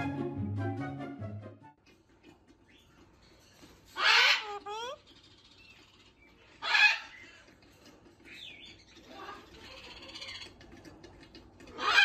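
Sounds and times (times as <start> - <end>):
scratchy bird chatter: 2.0 - 12.0
parakeet harsh squawk: 3.9 - 5.0, 6.6 - 7.5, 11.7 - 12.0.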